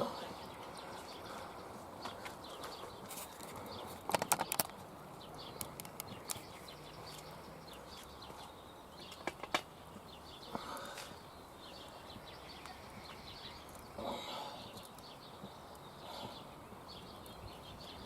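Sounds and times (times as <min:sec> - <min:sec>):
small birds chirping: 0:00.0 - 0:18.0
sharp clicks: 0:04.0 - 0:04.8.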